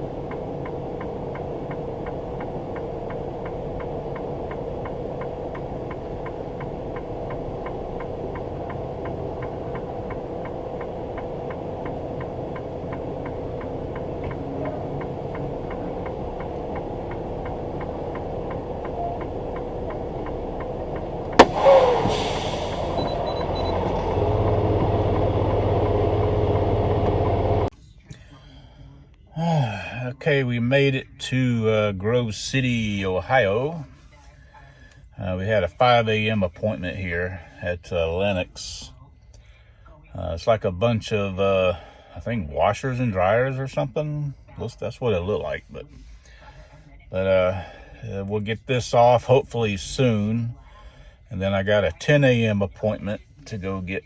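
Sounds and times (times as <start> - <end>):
fast even ticking: 0.0 - 22.0
truck engine running: 0.0 - 54.0
sharp loud crack: 21.4 - 23.0.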